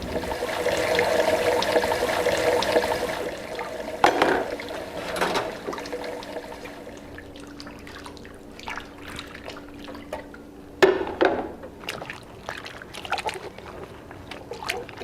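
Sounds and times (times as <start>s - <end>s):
water running and dripping: 0.0s - 10.5s
steady low hum: 0.0s - 10.8s.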